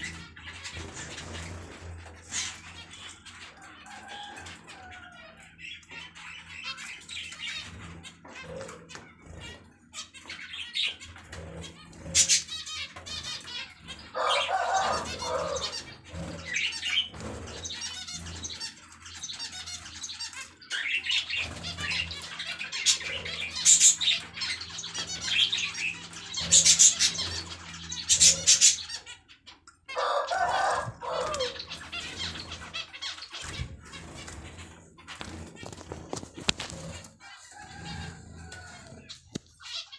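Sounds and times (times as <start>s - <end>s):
birds chirping: 0.0s - 39.9s
wings flapping: 11.2s - 28.9s, 30.0s - 39.8s.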